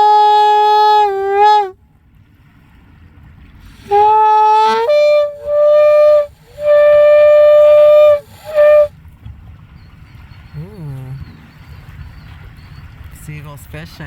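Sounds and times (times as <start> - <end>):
shofar blasts: 0.0 - 1.8, 3.8 - 8.9.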